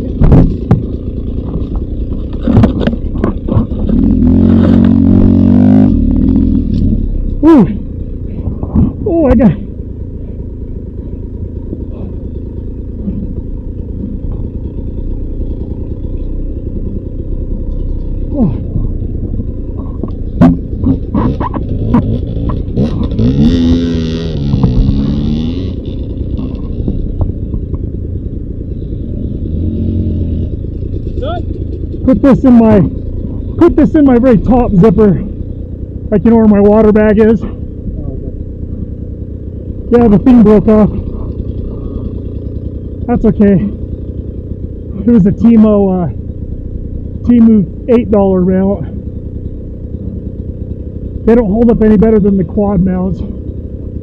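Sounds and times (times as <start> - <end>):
sharp knocks and clatters: 0.0 - 4.0, 11.6 - 23.6, 24.4 - 29.1
dirt bike engine revving: 0.0 - 54.0.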